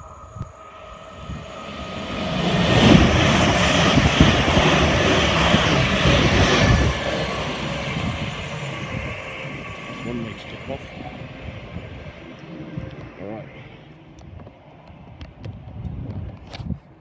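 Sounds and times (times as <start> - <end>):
electric train passing: 0.0 - 15.8
wheel and rail noise: 0.0 - 16.9.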